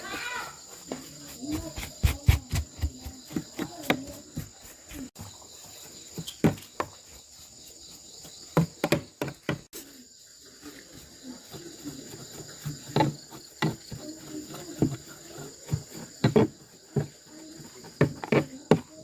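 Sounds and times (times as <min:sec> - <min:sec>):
insects chirring: 0:00.0 - 0:19.0
objects knocking and clicking: 0:12.1 - 0:19.0.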